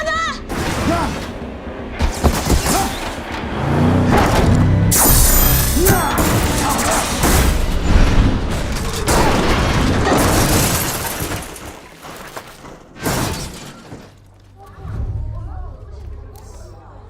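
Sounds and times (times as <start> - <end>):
sharp hit: 4.9 - 9.9
heavy crash impacts: 5.0 - 11.9
film score music: 11.8 - 17.0.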